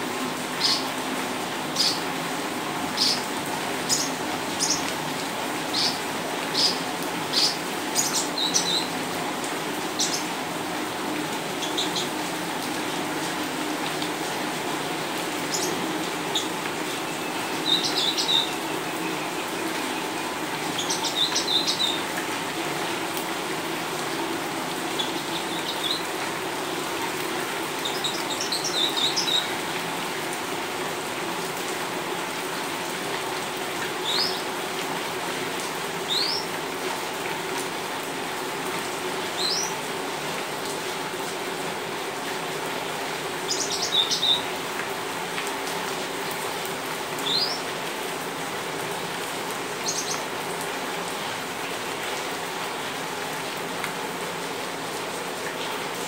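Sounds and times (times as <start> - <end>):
rain on paved patio: 0.0 - 56.0
birds chirping: 15.5 - 22.1, 43.4 - 44.5, 47.2 - 47.6, 49.8 - 50.3.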